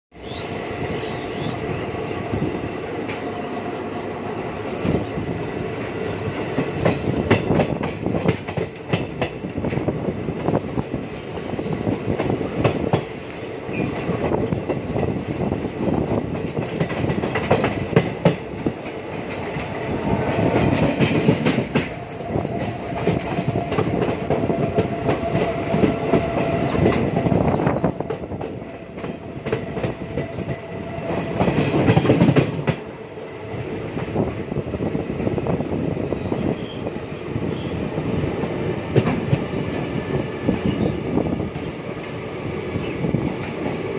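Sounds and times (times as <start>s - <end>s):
train rolling rumble: 0.2s - 43.9s
wheels clattering over rail joints: 26.7s - 32.9s.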